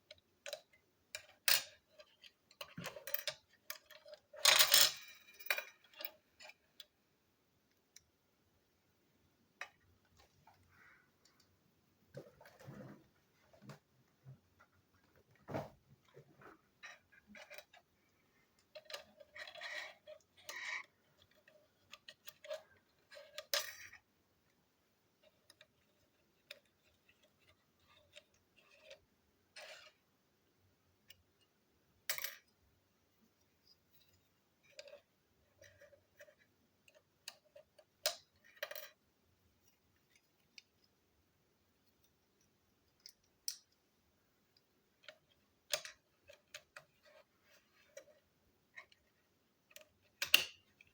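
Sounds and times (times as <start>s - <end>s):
plastic toy train pieces clicking: 18.6s - 24.0s.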